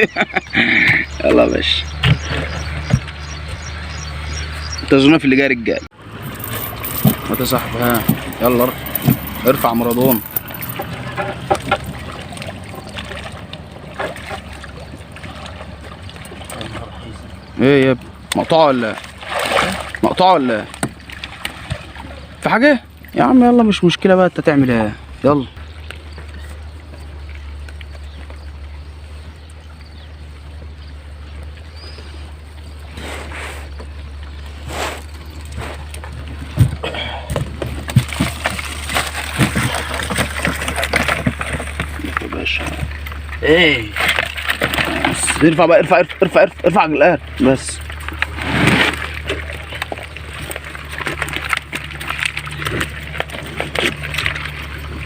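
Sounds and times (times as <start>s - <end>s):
knocks and clunks: 1.9s - 3.8s, 6.2s - 12.2s
water sloshing and trickling: 6.0s - 55.0s.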